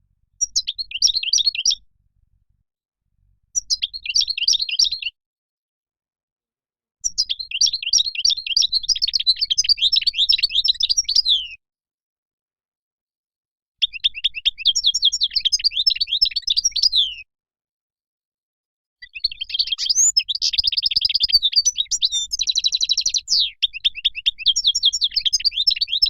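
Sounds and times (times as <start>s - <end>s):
goldfinch singing: 0.4s - 1.8s, 3.6s - 5.1s, 7.0s - 11.5s, 19.0s - 26.0s.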